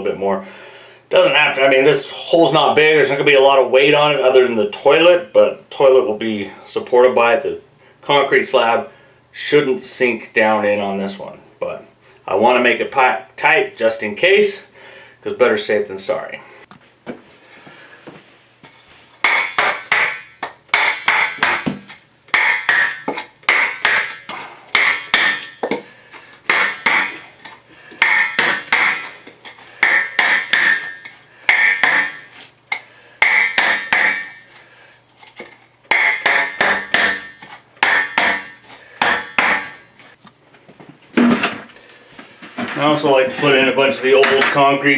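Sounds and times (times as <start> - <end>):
metal tool tamping wet dirt: 26.5 - 32.5, 42.6 - 44.6.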